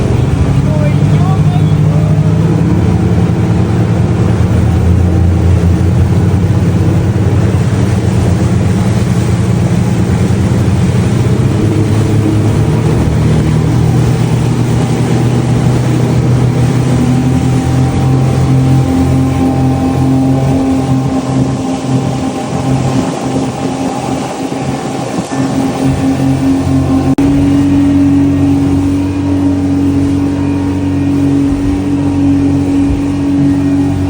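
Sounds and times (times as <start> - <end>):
loud engine humming: 0.0 - 34.0.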